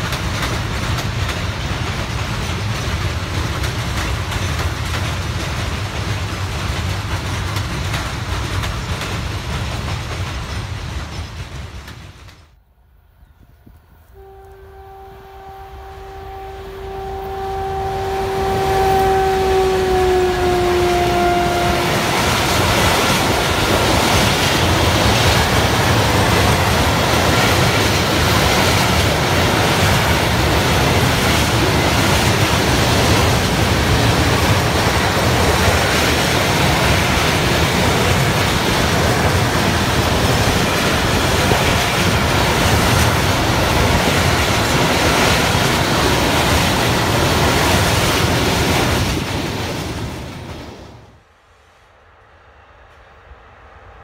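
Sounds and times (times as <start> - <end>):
freight train wheels on rails: 0.0 - 54.0
locomotive horn: 14.0 - 24.3.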